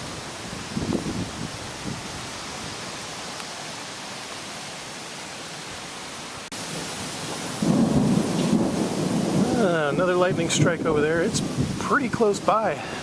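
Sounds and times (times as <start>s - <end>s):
gusty storm wind rushing: 0.0s - 2.9s, 7.5s - 13.0s.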